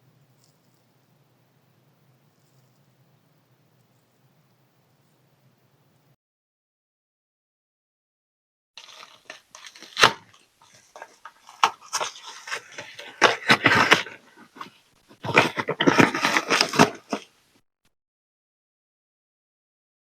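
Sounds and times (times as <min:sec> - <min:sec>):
plastic packaging crinkling: 0:08.8 - 0:17.3.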